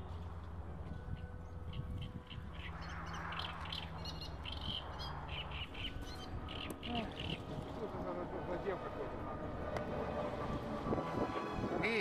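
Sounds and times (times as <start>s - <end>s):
birds chirping: 0.0s - 8.9s
wind rumble on microphone: 0.0s - 12.0s.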